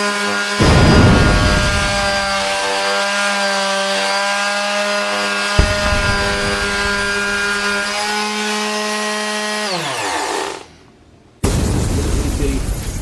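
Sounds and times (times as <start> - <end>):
electric sander humming: 0.0 - 10.6
sander winding down: 5.2 - 8.6.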